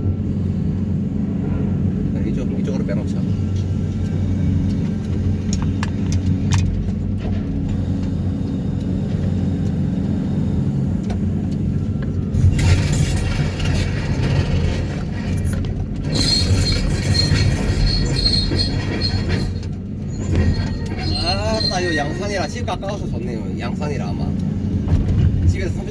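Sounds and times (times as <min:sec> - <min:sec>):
low engine hum: 0:00.0 - 0:25.9
loud machine noise: 0:12.3 - 0:22.4.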